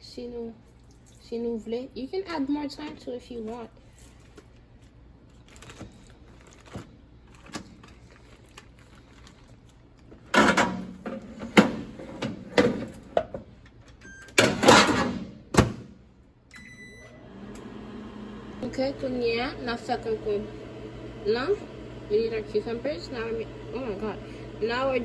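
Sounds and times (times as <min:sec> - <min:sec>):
appliance door rattling scrapes: 0:10.2 - 0:13.2, 0:14.5 - 0:15.4.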